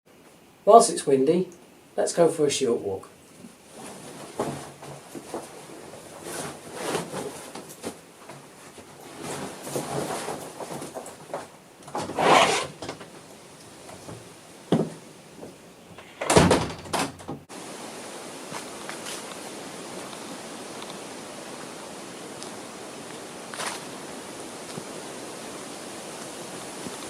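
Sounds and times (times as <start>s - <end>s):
bumps rustles and clunks: 3.3s - 17.5s
door opening and shutting: 11.9s - 13.1s, 15.9s - 17.5s
wind hiss: 17.5s - 27.0s.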